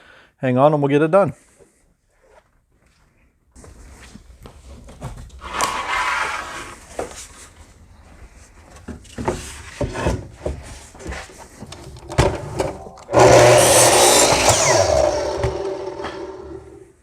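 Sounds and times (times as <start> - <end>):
wood scraping on wood: 9.4 - 16.8.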